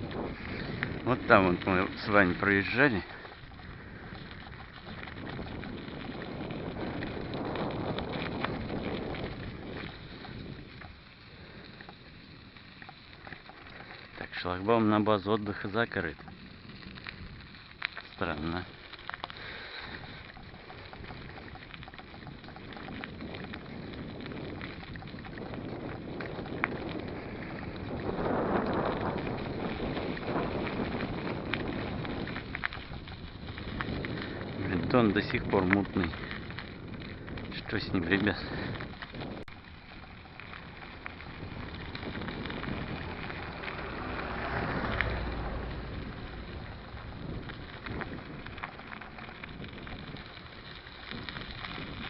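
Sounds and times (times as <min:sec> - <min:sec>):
bike tyre rumble: 0:00.0 - 0:52.0
wind on microphone: 0:00.0 - 0:52.0
light ticking: 0:00.8 - 0:28.0
scattered clicks: 0:12.6 - 0:52.0.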